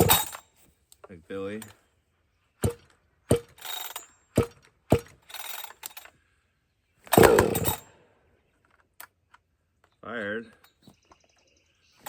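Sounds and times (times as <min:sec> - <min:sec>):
chainsaw engine firing: 0:00.0 - 0:00.4, 0:02.6 - 0:06.0, 0:07.1 - 0:07.9
chainsaw engine turning over: 0:00.0 - 0:00.4, 0:02.6 - 0:06.1, 0:07.1 - 0:07.9
chainsaw starter cord yanks: 0:00.0 - 0:00.4, 0:02.6 - 0:06.2, 0:07.0 - 0:07.9.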